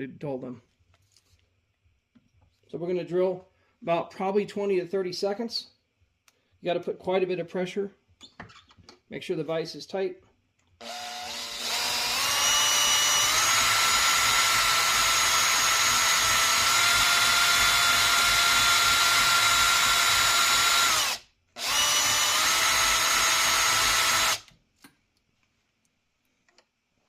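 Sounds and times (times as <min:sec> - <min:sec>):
cordless drill whining: 0:10.8 - 0:24.5.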